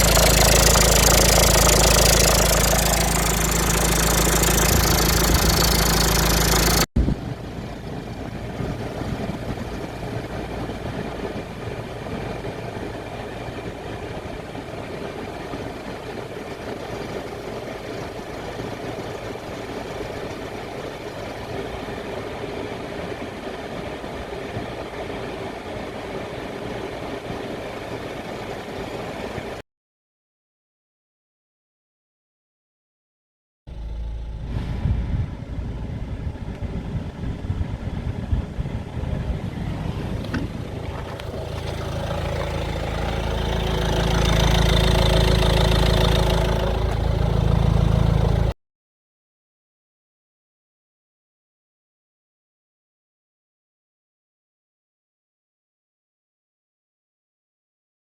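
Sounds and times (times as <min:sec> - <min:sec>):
car engine idling with rattle: 0:00.0 - 0:29.4, 0:33.7 - 0:48.6.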